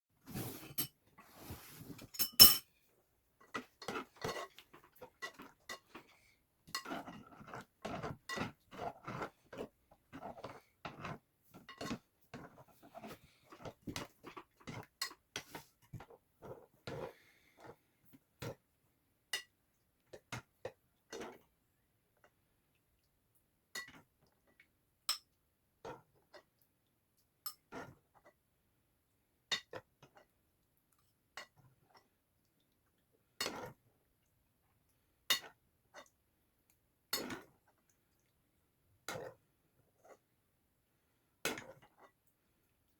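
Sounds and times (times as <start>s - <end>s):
utensils clinking against bowl: 2.0s - 2.7s.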